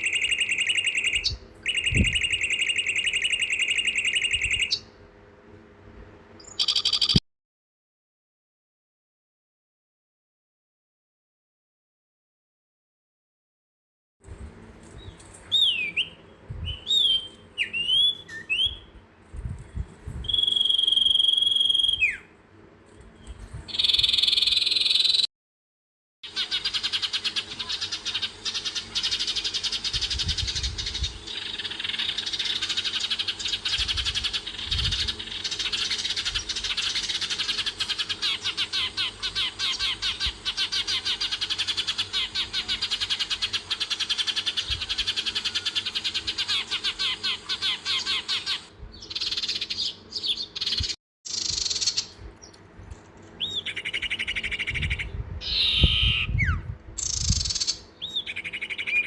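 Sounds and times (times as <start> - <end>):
chorus of rapid trilling calls: 0.0 - 4.9, 26.2 - 52.2.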